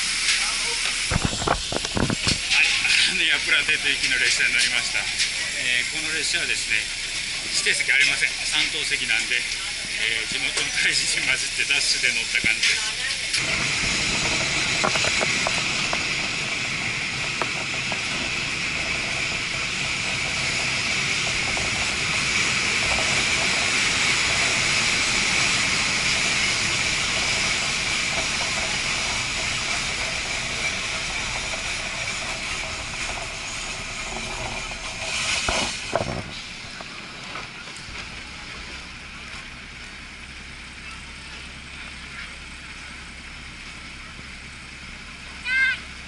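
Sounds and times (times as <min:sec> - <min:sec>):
train rolling on rails: 0:00.0 - 0:46.0
rushing air: 0:13.4 - 0:39.8.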